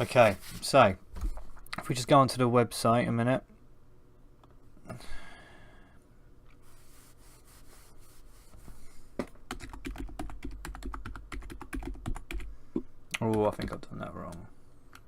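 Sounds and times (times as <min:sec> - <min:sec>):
typing on computer keyboard: 0:09.5 - 0:12.5.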